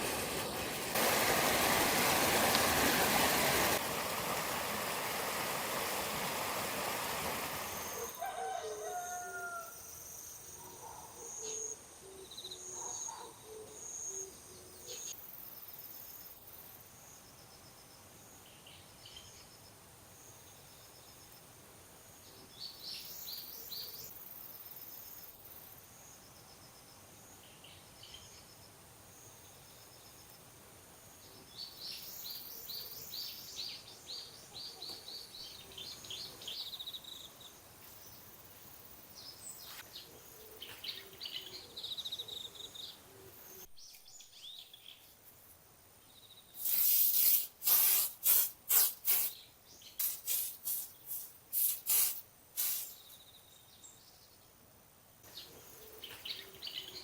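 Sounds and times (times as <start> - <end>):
faint outdoor background: 0.0 - 57.0
small birds chirping: 31.3 - 45.2, 46.0 - 54.5, 55.3 - 57.0.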